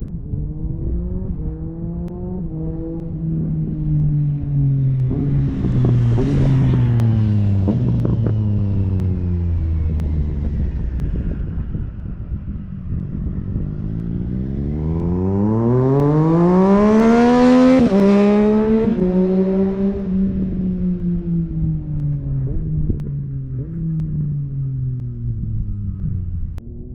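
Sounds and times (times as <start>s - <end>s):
motorcycle engine revving and idling: 0.0s - 26.9s
exhaust pops: 5.0s - 14.2s.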